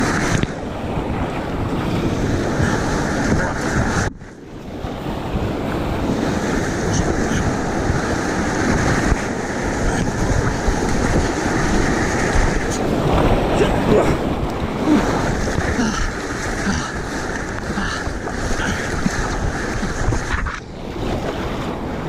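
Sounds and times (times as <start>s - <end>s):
wind buffeting microphone: 0.0s - 22.0s
river whitewater rushing: 4.6s - 22.0s.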